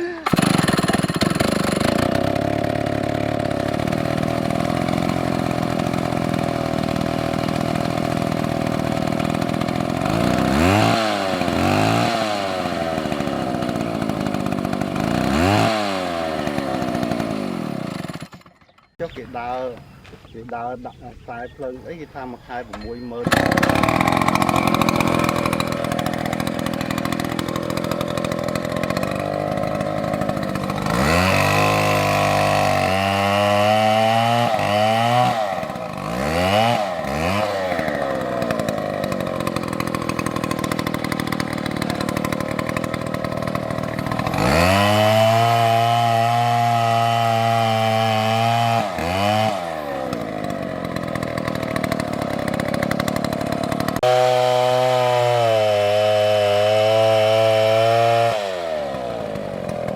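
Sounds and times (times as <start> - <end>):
chainsaw engine revving: 0.0 - 19.8, 22.8 - 59.9.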